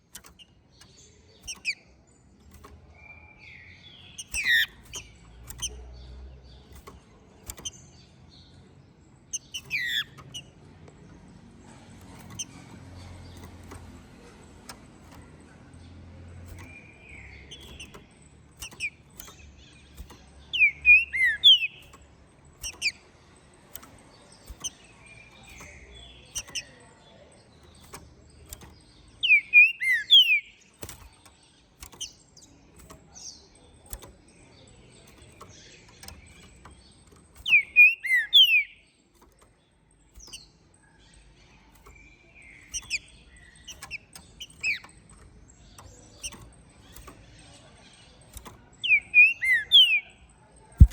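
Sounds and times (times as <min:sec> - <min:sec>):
sharp clicks: 0:00.0 - 0:50.0
soft short bird notes: 0:00.1 - 0:10.6.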